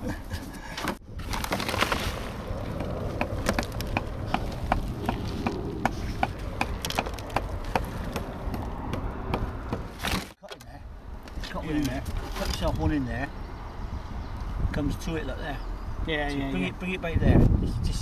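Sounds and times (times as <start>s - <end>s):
roof tiles clicking and knocking: 2.8s - 8.7s.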